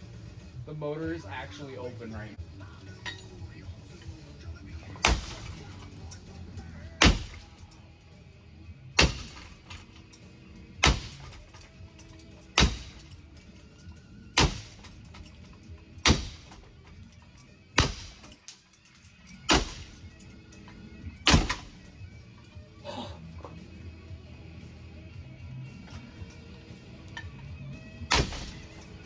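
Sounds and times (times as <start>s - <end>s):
background music: 0.0s - 29.0s
rattle of breaking parts: 4.9s - 7.8s, 9.0s - 22.5s, 28.1s - 29.0s
ceiling fan being smashed: 5.0s - 5.8s, 7.0s - 7.8s, 9.0s - 10.0s, 10.8s - 11.7s, 12.5s - 13.2s, 14.4s - 15.4s, 16.0s - 16.8s, 17.8s - 18.5s, 19.5s - 20.2s, 21.3s - 21.9s, 28.1s - 28.8s.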